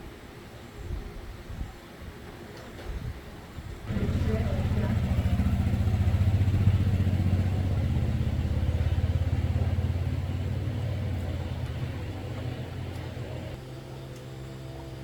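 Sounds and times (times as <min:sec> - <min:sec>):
engine running: 0:03.8 - 0:15.0.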